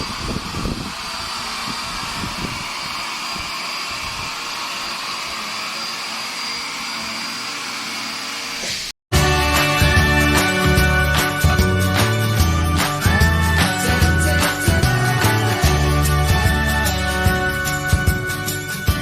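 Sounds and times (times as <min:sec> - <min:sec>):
vacuum cleaner whirring: 0:00.0 - 0:11.6.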